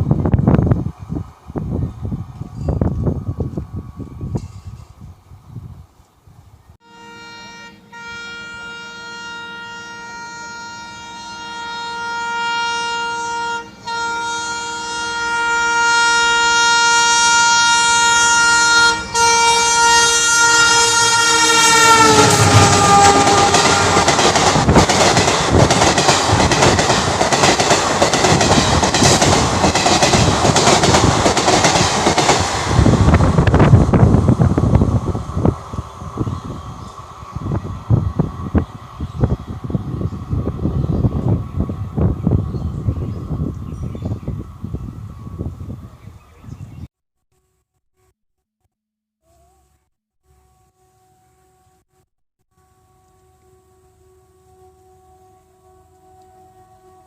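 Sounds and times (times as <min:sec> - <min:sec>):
train wheel and rail clatter: 0:00.0 - 0:05.1, 0:22.0 - 0:39.4
train horn blast: 0:06.8 - 0:24.7, 0:52.5 - 0:57.0.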